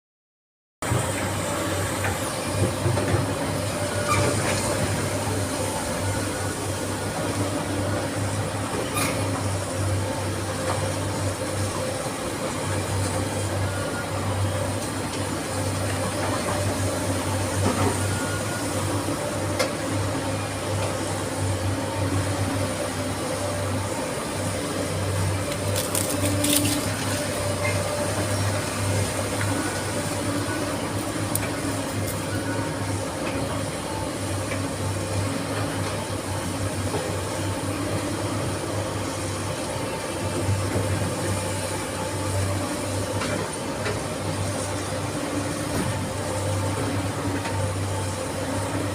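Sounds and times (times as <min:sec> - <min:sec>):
excavator diesel engine humming: 0:00.8 - 0:48.9.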